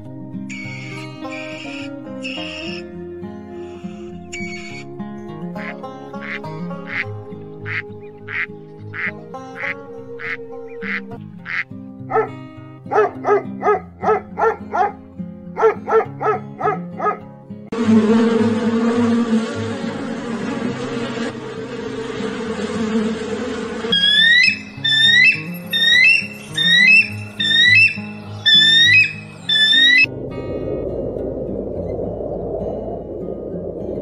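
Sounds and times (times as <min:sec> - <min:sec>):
background music: 0:00.0 - 0:31.1
ducks quacking: 0:00.5 - 0:02.9, 0:03.5 - 0:04.9, 0:05.5 - 0:15.0, 0:19.4 - 0:30.1.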